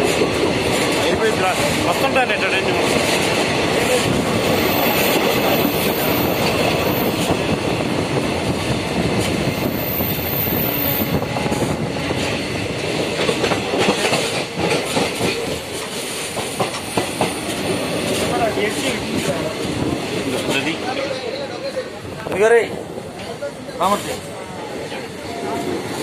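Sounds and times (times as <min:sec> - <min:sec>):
train wheels clicking: 0:00.0 - 0:20.8
train running noise: 0:00.0 - 0:26.0.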